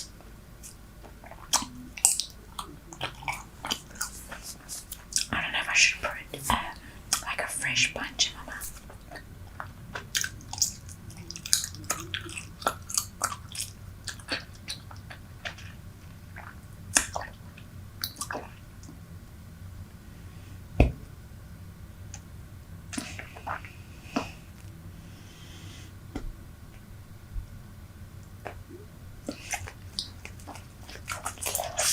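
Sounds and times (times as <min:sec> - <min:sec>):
gum chewing wet clicks: 0:00.0 - 0:07.4, 0:08.5 - 0:19.0, 0:28.2 - 0:31.9.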